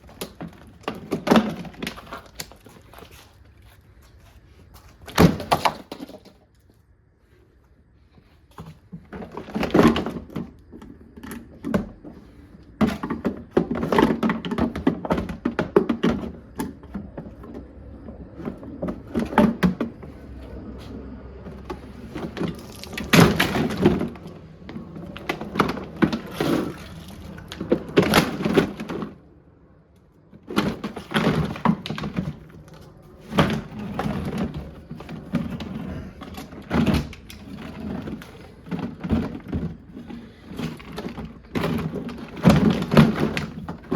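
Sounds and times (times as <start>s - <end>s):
plastic being smashed: 5.0s - 6.4s, 22.1s - 29.2s, 30.3s - 43.9s.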